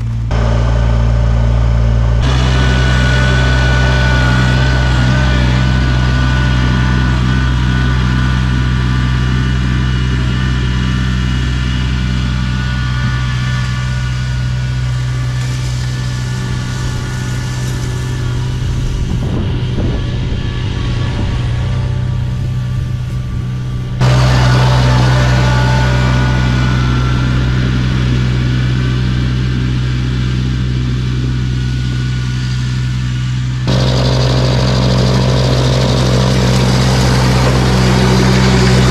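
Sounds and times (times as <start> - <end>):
high whine: 0.0 - 38.9
snowblower engine running: 0.0 - 38.9.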